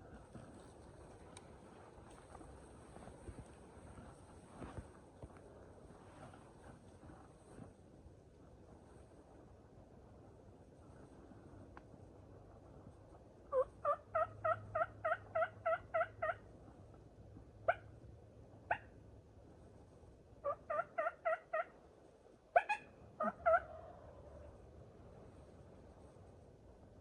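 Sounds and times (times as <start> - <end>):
turkey yelping: 13.5 - 16.4, 17.7 - 17.9, 18.7 - 18.9, 20.4 - 21.7, 22.5 - 24.0.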